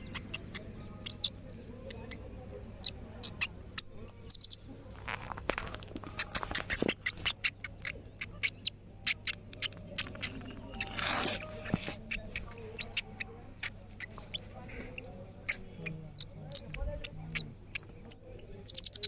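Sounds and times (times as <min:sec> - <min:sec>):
squirrel chirping: 0:00.0 - 0:04.6, 0:06.1 - 0:19.0.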